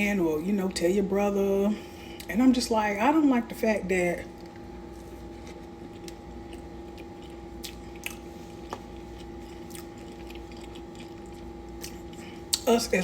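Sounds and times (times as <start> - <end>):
steady background hum: 0.0 - 13.0
person chewing food: 4.4 - 12.7.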